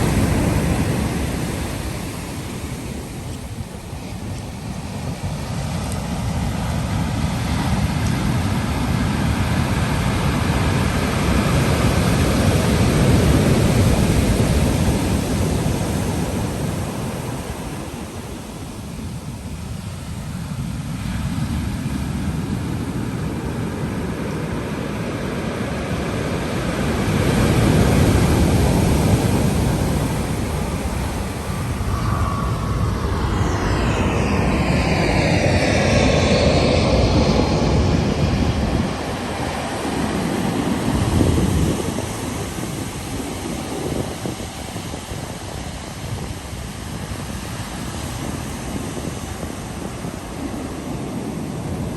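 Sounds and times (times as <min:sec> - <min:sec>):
ocean waves breaking: 0:00.0 - 0:05.4
sweeping whoosh: 0:29.3 - 0:40.7.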